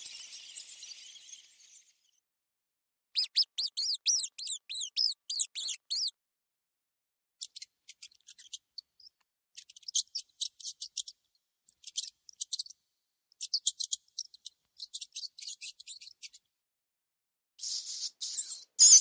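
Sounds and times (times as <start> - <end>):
mouse squeaking: 3.2 - 6.2, 7.4 - 11.1, 13.4 - 16.4, 17.6 - 19.0.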